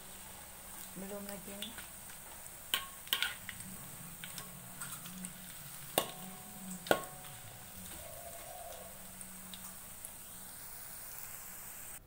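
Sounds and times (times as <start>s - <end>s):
metal spatula stirring in wok: 0.0s - 10.3s
mushrooms sizzling in oil: 0.0s - 12.0s
spatula knocking against wok: 5.9s - 8.1s.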